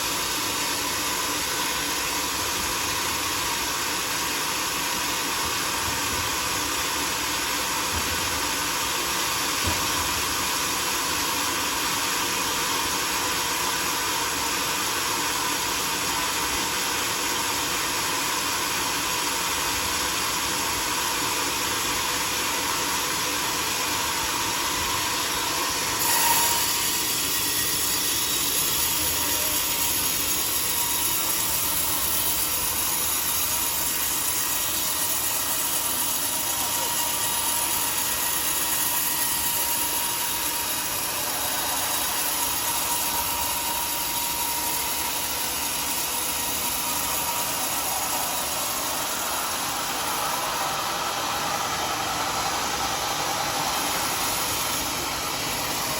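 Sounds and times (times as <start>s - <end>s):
sawmill saw running: 0.0s - 55.9s.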